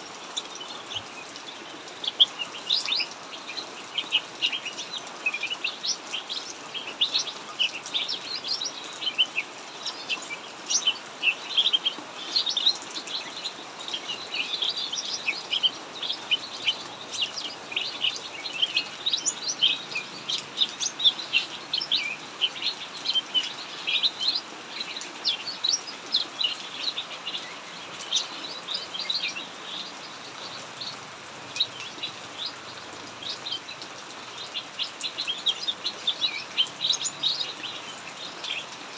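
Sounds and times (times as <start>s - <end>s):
heavy rain hissing: 0.0s - 38.9s
songbirds chirping and trilling: 0.0s - 38.9s.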